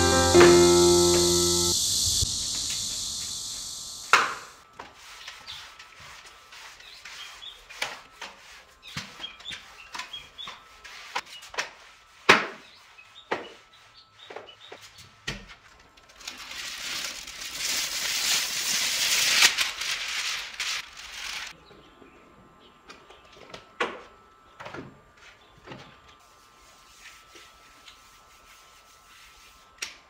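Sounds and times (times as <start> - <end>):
piano music: 0.0 - 1.8.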